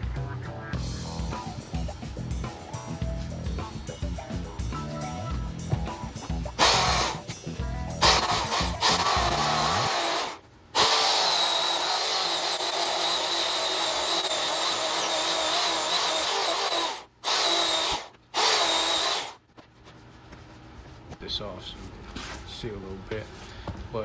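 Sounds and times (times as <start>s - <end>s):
electric chainsaw cutting log: 6.6s - 7.3s, 8.0s - 19.4s.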